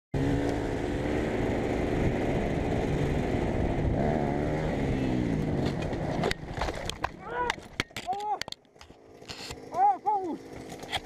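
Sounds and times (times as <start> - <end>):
steady rushing noise: 0.2 - 7.2
motorcycle engine under throttle: 0.2 - 11.0.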